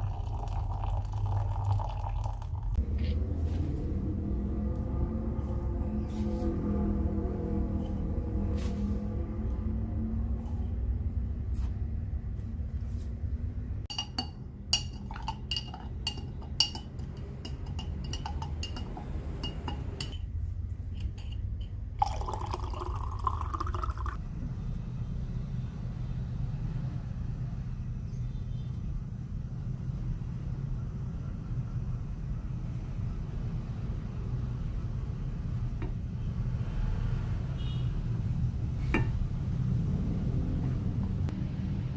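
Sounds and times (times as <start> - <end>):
liquid pouring into container: 0.0 - 2.8, 22.0 - 24.2.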